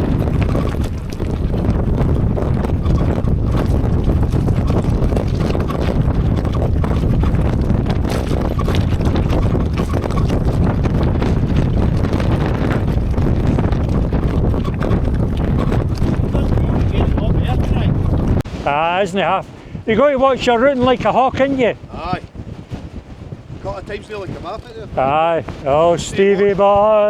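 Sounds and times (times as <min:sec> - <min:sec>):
bike rattling and knocking: 0:00.0 - 0:18.4
wind buffeting microphone: 0:00.0 - 0:27.0.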